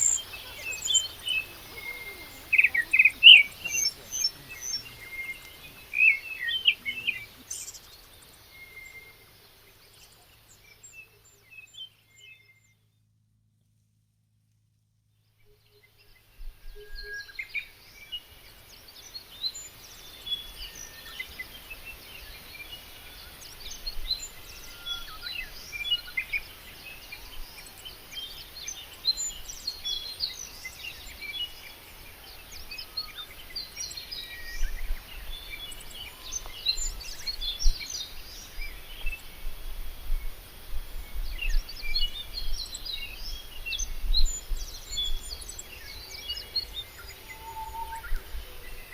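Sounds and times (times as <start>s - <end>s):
birds chirping and calling: 0.0s - 4.9s
steady background hiss: 0.0s - 7.5s.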